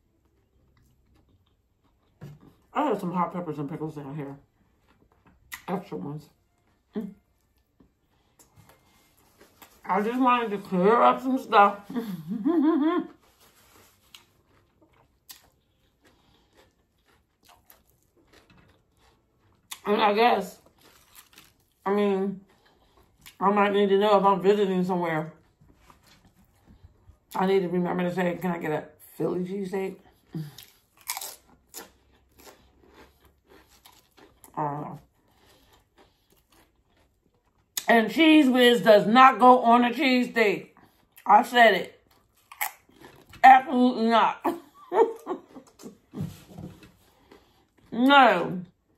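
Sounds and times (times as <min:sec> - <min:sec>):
person crunching food: 0:13.2 - 0:19.9, 0:20.6 - 0:21.8, 0:30.2 - 0:37.9, 0:42.0 - 0:43.4, 0:46.9 - 0:47.9.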